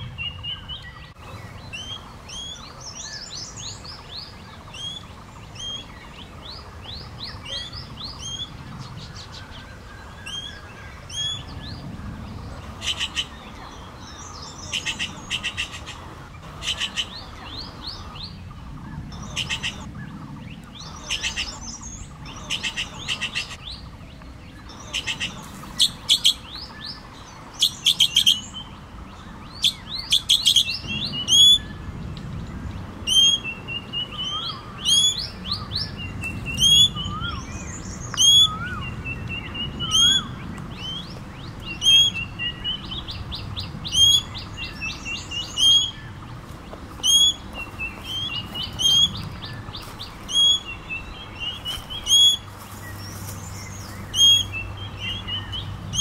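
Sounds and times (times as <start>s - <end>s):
fast bird trills: 7.1s - 23.7s, 29.6s - 31.8s, 33.0s - 41.0s, 41.7s - 46.2s, 47.0s - 56.0s
high chattering bird notes: 10.2s - 23.7s, 24.6s - 28.8s, 32.9s - 56.0s.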